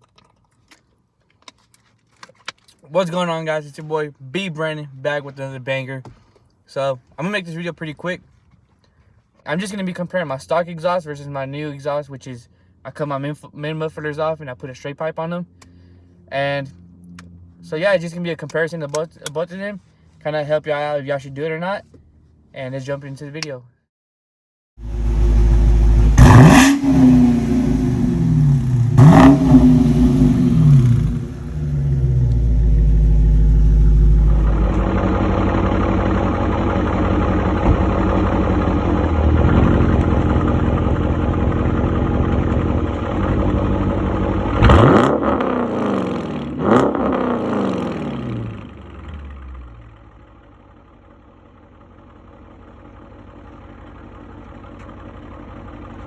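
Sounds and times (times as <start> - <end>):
car exhaust revving: 24.8 - 51.7.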